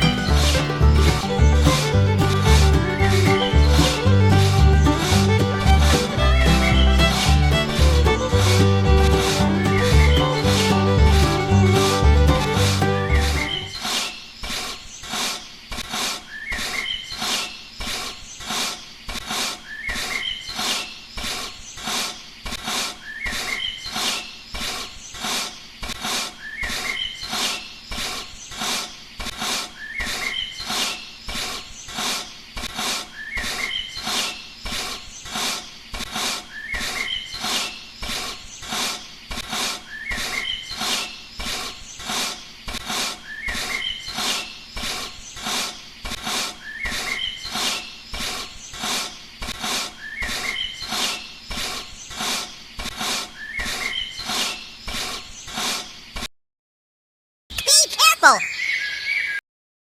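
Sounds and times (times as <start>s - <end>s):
rhythmic animal calls: 0.0s - 13.9s
short rising chirp: 12.9s - 13.7s.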